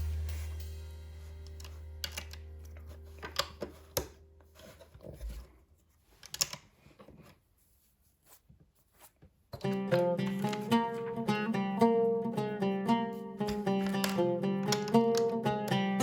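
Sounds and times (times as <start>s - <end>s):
low held tone: 0.0s - 4.5s
plastic pieces clicking: 6.2s - 6.7s, 13.8s - 15.4s.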